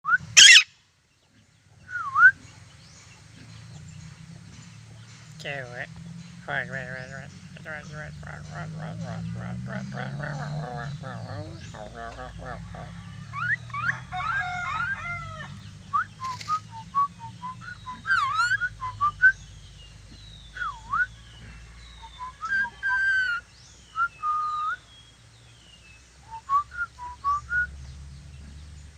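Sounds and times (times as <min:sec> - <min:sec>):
parrot whistling: 0:00.1 - 0:00.7, 0:17.0 - 0:19.3.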